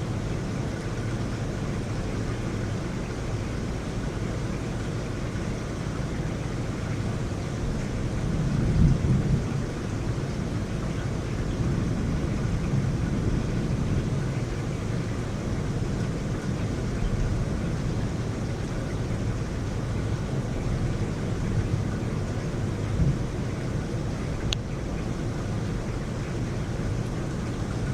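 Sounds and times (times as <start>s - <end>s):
heavy rain pouring: 0.0s - 27.9s
thunder rumbling: 7.6s - 27.9s.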